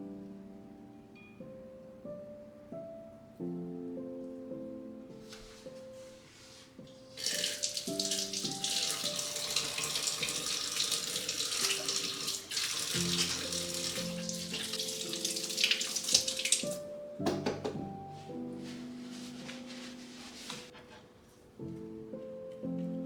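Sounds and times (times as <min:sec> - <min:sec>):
soft piano music: 0:00.0 - 0:23.0
tap water running into sink: 0:07.1 - 0:17.8.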